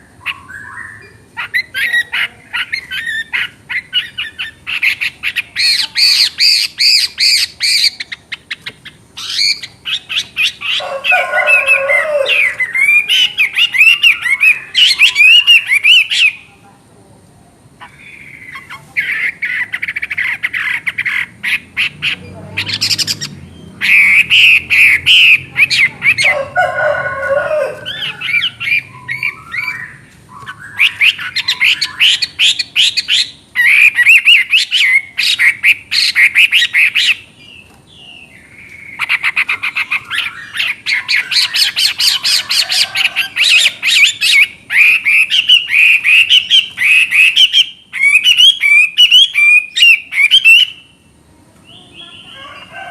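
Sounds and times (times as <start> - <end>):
bird singing whistled phrases: 0.2 - 1.2, 28.4 - 37.2, 43.6 - 50.9.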